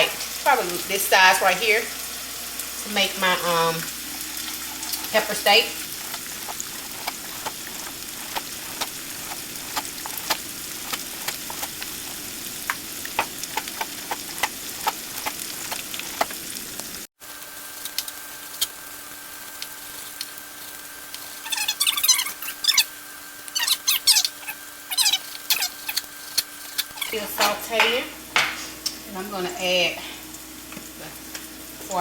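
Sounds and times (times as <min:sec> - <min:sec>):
peppers sizzling in a frying pan: 0:00.0 - 0:32.0
sharp clicks of sizzling oil: 0:03.7 - 0:22.1, 0:25.1 - 0:29.6, 0:30.3 - 0:32.0.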